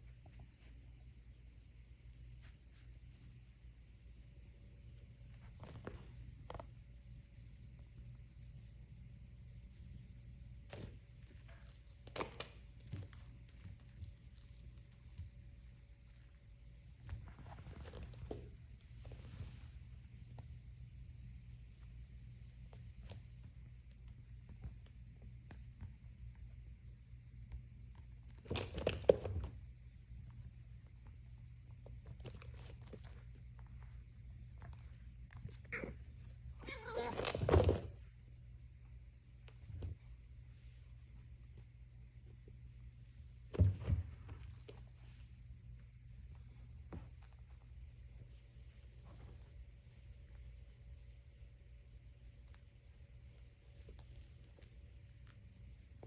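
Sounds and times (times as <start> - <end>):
low steady hum: 0.0 - 56.0
soft clicks and rustles: 4.4 - 8.6, 10.0 - 51.4, 52.1 - 56.0
cat making noisy sound: 36.6 - 37.3.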